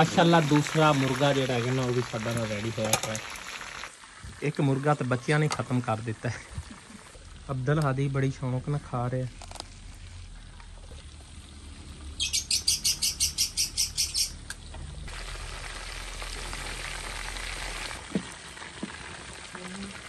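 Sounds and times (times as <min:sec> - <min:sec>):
steady hiss: 0:00.0 - 0:10.7
bird chirping: 0:12.2 - 0:14.4.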